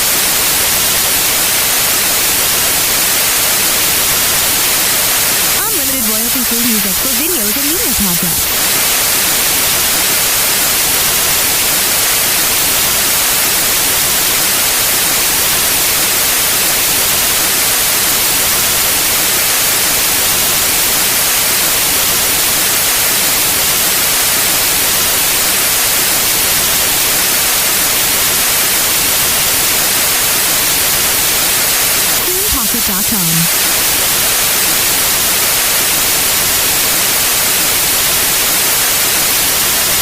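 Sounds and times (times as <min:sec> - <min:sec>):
white noise hiss: 0:00.0 - 0:40.0.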